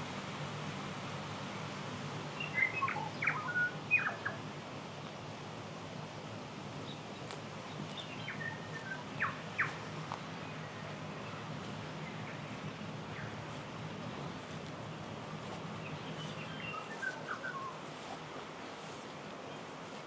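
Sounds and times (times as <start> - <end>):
steady background hiss: 0.0 - 20.0
songbird singing: 2.4 - 4.4, 7.9 - 9.8, 15.8 - 17.9.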